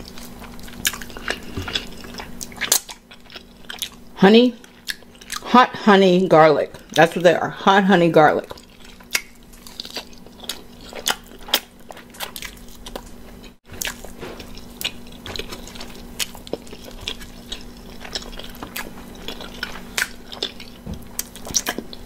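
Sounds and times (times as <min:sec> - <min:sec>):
person chewing food: 0:00.0 - 0:05.5, 0:08.4 - 0:22.0.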